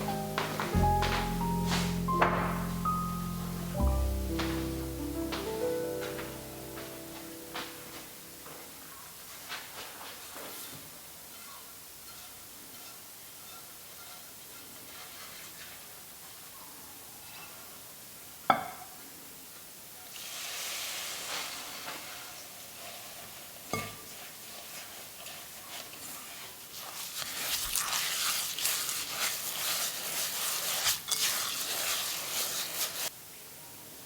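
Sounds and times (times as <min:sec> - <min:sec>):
knock: 0:00.4 - 0:02.8
soft rustle: 0:04.4 - 0:17.6, 0:20.2 - 0:33.1
rapid scratchy stirring: 0:11.3 - 0:15.9, 0:22.7 - 0:33.1.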